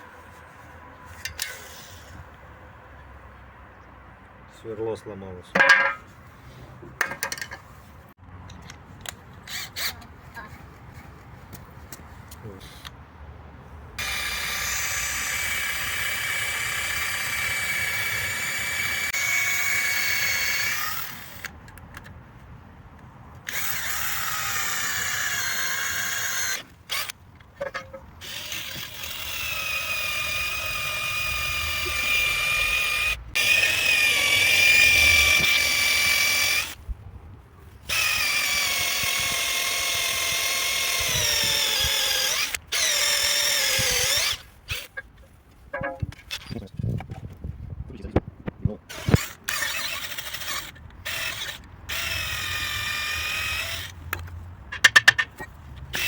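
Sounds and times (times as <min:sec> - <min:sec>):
electric drill whining: 0:14.0 - 0:21.5, 0:23.5 - 0:27.2, 0:28.2 - 0:36.8, 0:37.9 - 0:45.0, 0:48.9 - 0:54.0.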